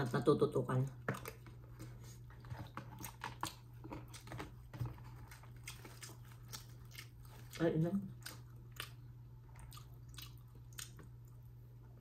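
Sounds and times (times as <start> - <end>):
low steady hum: 0.0 - 12.0
chewing clicks and crunches: 2.6 - 11.4.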